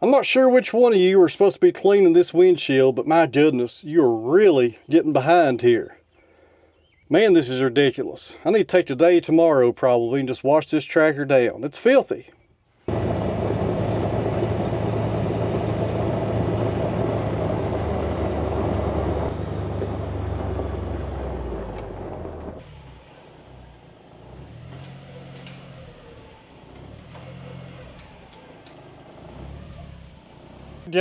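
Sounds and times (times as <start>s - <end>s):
tractor engine running: 12.9s - 31.0s.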